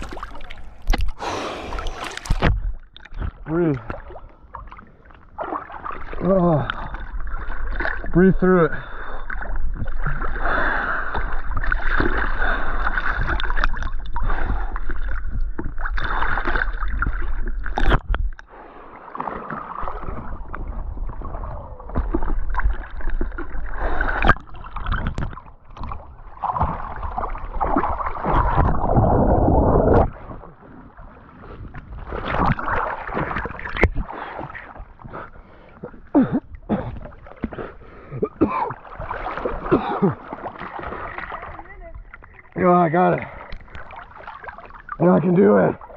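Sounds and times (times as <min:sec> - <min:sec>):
boat and paddle splashes: 0:00.0 - 0:45.9.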